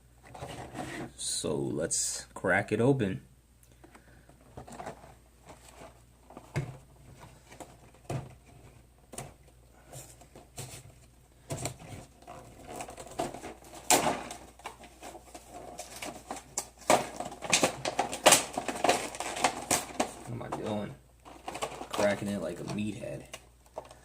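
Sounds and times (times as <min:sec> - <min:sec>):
plastic packaging clicks and knocks: 0:03.8 - 0:09.6, 0:11.4 - 0:24.0
packaging crinkling and tearing: 0:11.6 - 0:24.0.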